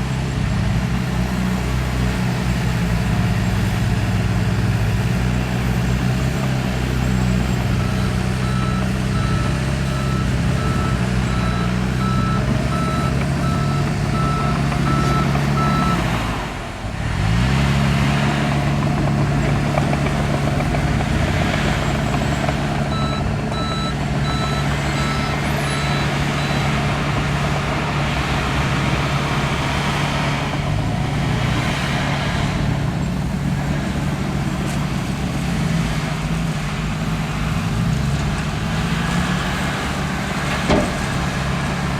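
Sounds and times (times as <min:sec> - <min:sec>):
diesel engine running: 0:00.0 - 0:41.9
reversing alarm beeping: 0:07.7 - 0:16.1, 0:22.9 - 0:26.8.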